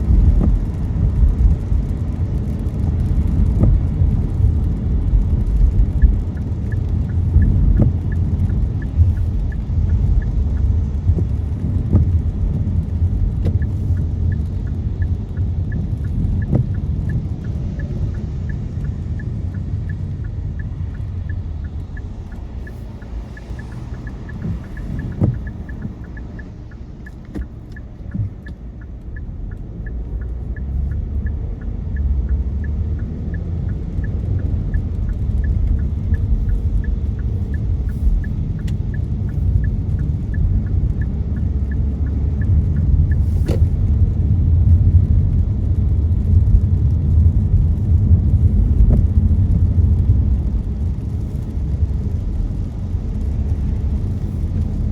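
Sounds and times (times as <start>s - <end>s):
car road and engine rumble: 0.0s - 54.9s
fast regular ticking: 0.1s - 44.4s.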